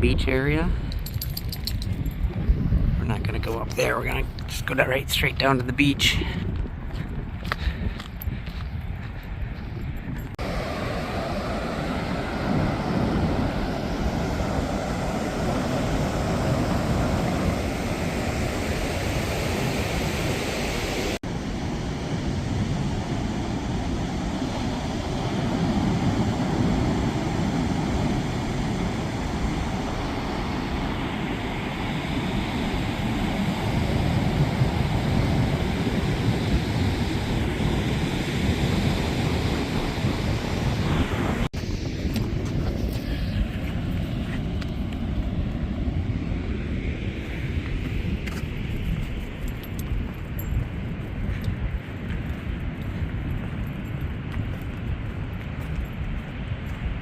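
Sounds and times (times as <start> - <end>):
wind buffeting microphone: 0.0 - 57.0
ocean surf: 10.4 - 50.2.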